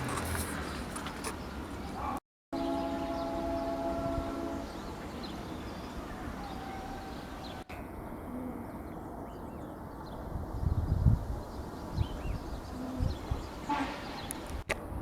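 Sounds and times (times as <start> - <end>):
birds calling: 0.6 - 10.2, 11.5 - 14.6
steady horn-like tone: 2.5 - 4.9
low cooing: 8.1 - 9.0, 12.7 - 13.2.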